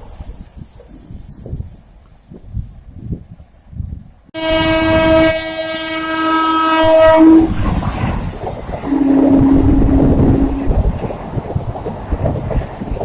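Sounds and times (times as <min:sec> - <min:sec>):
passing train rail clatter: 0:00.0 - 0:13.0
locomotive horn blast: 0:04.4 - 0:08.1, 0:08.8 - 0:11.0.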